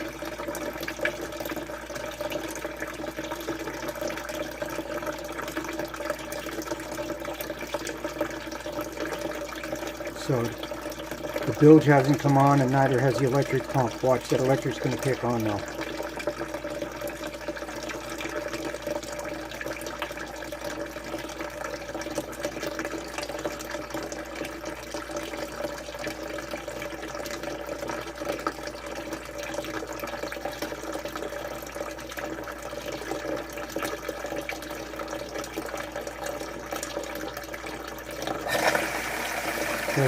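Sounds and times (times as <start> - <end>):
electric sump pump running: 10.0 - 16.8, 38.2 - 40.0.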